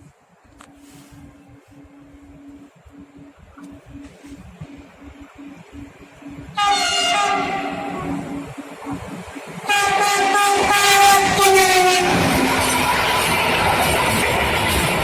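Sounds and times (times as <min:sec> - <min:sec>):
train passing rumble: 0:00.0 - 0:15.0
train horn blasts: 0:06.4 - 0:08.6, 0:09.6 - 0:12.5.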